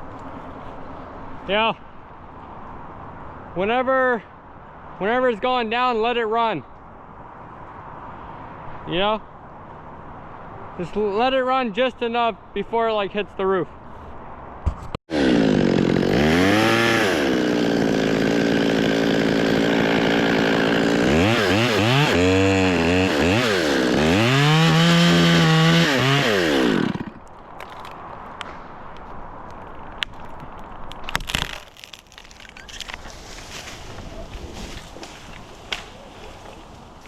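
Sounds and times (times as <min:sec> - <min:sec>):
chainsaw cutting wood: 0:15.1 - 0:27.2.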